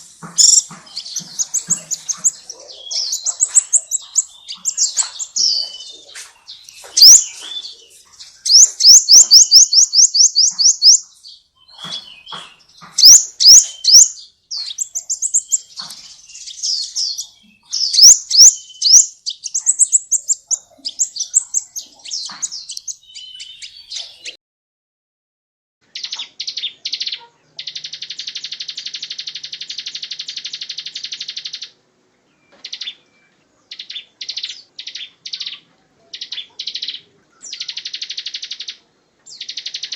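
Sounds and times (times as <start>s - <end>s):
buzzing bird trill: 0.0s - 5.8s
bird chattering: 0.0s - 24.4s, 25.9s - 31.8s, 33.7s - 39.9s
high whistled bird song: 0.0s - 24.4s, 36.2s - 39.9s.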